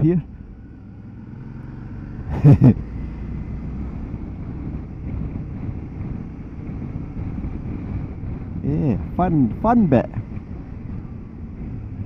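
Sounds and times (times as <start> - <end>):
motorcycle engine running: 0.0 - 12.0
wind noise on microphone: 3.8 - 12.0.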